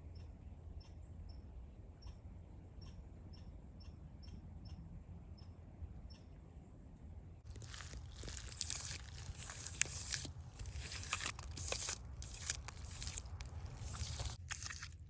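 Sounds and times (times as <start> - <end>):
dry leaves crunching: 7.5 - 15.0.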